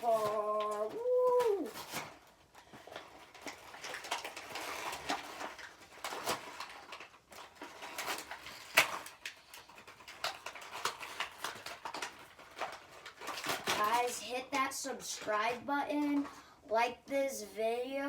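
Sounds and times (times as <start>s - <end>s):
packaging crinkling and rustling: 0.0s - 17.0s.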